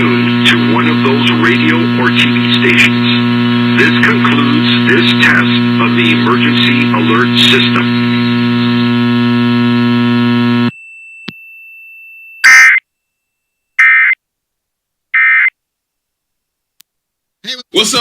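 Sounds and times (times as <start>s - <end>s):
loud buzzing hum: 0.0s - 10.7s
faint thin whine: 0.0s - 11.0s
short data tone bursts: 12.4s - 12.8s, 13.8s - 14.2s, 15.2s - 15.5s.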